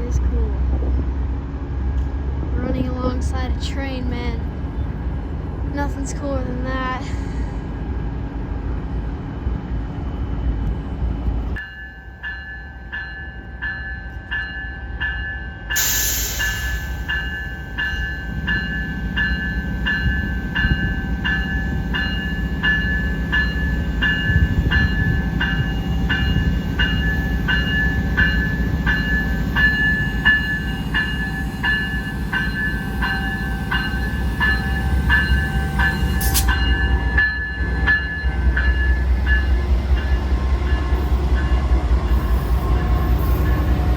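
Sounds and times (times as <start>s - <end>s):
train rumbling past: 0.0s - 43.9s
bell striking: 11.6s - 40.1s.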